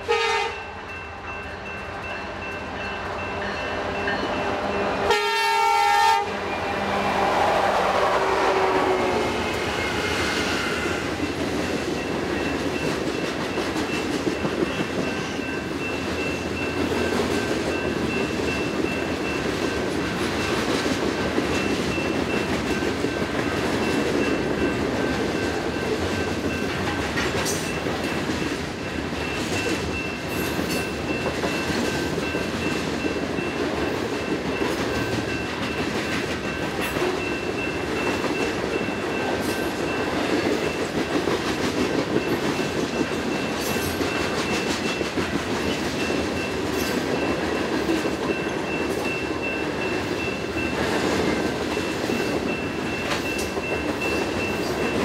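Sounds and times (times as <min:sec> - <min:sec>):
crossing bell dinging: 0:00.0 - 0:55.0
freight train wheels clattering: 0:09.0 - 0:55.0.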